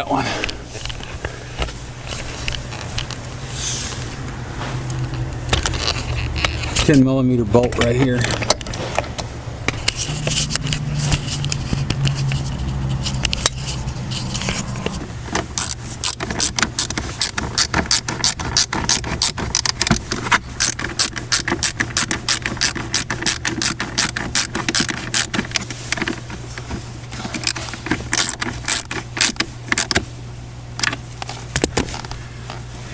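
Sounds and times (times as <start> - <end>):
steady low hum: 0.0 - 32.9
ratchet wrench clicking rapidly: 15.6 - 19.9, 20.6 - 25.4, 27.5 - 30.0.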